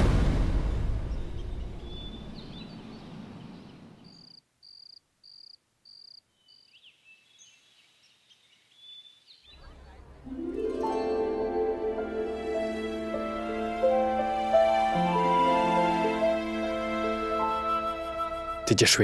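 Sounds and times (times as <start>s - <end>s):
cricket chirping: 4.0s - 6.8s
music: 10.2s - 19.0s.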